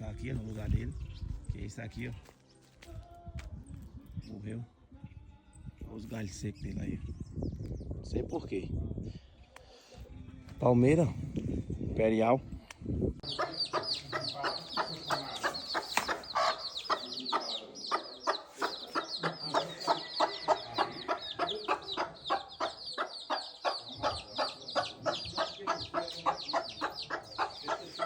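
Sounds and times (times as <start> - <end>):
many birds calling: 13.2 - 28.0.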